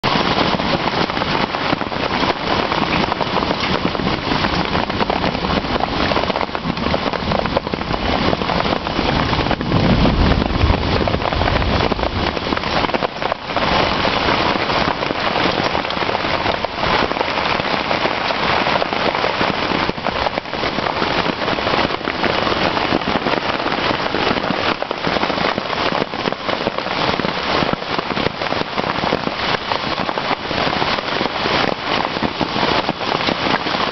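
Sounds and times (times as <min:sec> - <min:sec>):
hailstones clattering: 0:00.1 - 0:33.9
low rumble: 0:06.9 - 0:12.8.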